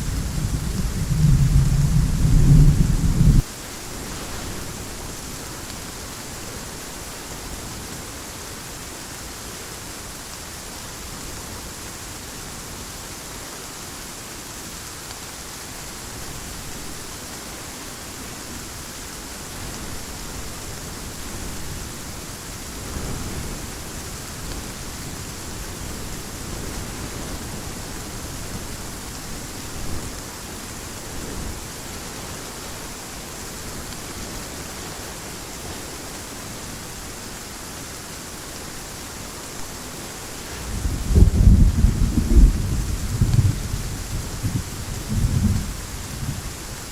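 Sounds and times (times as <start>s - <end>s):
distant thunder rumble: 0.0s - 3.4s, 40.4s - 46.6s
heavy rain hissing: 0.0s - 46.9s.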